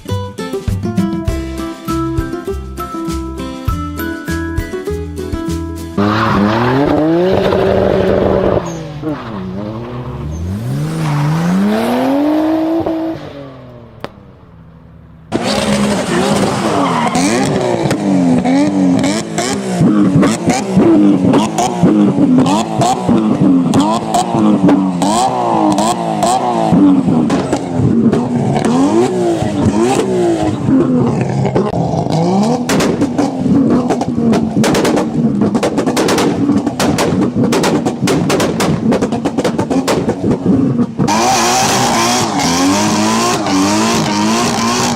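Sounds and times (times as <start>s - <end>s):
car engine revving: 6.0s - 44.9s
exhaust pops and crackles: 6.3s - 10.5s, 15.3s - 44.9s.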